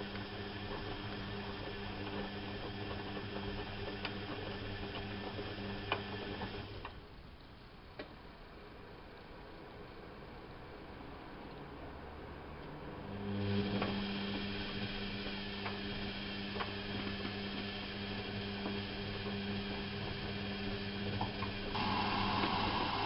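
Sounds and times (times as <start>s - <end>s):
washing machine motor humming: 0.0s - 6.9s, 13.0s - 23.0s.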